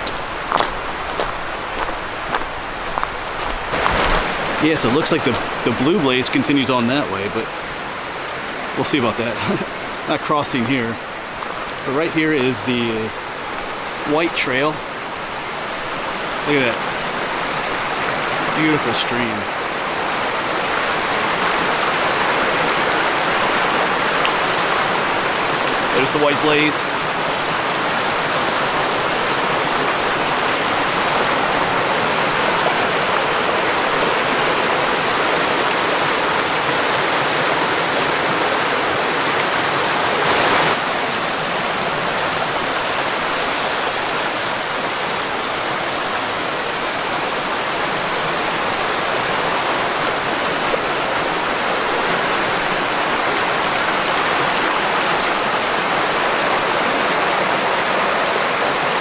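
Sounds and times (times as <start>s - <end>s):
creek water rushing and splashing: 0.0s - 59.0s
short louder splash: 3.7s - 5.4s.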